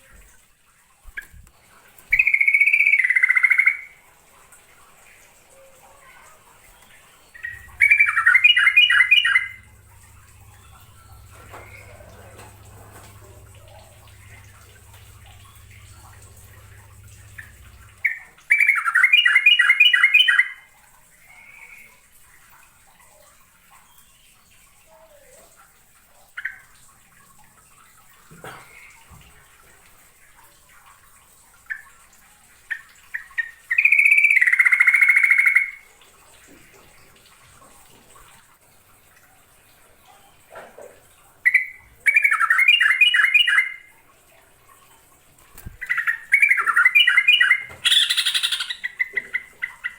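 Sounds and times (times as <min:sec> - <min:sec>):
low hum: 0:07.3 - 0:18.5
bulbul singing warbled phrases: 0:07.3 - 0:20.4, 0:45.8 - 0:49.9.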